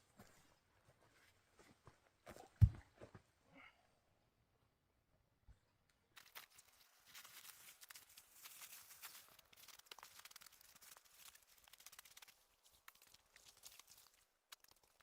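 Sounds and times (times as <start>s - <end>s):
small crackles and clicks: 5.9s - 15.0s
faint rustling and crunching: 6.1s - 15.0s.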